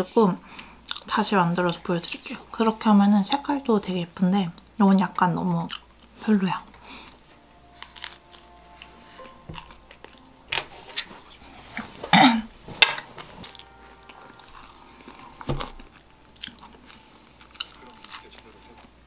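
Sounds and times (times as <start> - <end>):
crunchy toast chewing: 7.0 - 10.4, 13.0 - 19.0.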